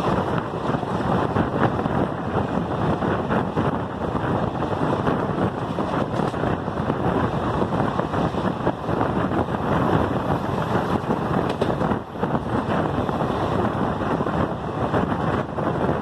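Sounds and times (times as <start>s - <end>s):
train wheels rumbling on rails: 0.0s - 16.0s
wind buffeting microphone: 0.0s - 16.0s.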